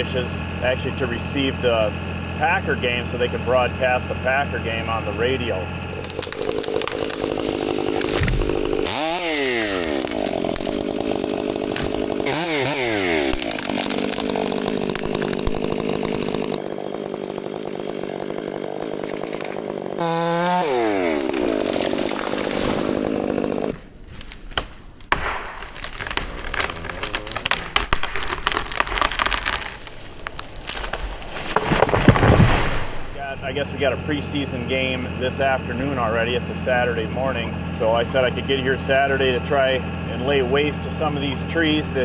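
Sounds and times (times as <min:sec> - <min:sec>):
chainsaw running: 0:00.0 - 0:23.8, 0:33.4 - 0:42.0
wood cracking and snapping: 0:05.9 - 0:33.2.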